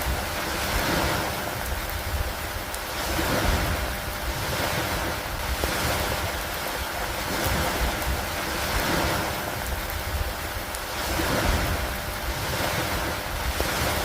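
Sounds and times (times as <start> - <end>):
gusting wind: 0.0 - 14.0
storm rain hiss: 0.0 - 14.0.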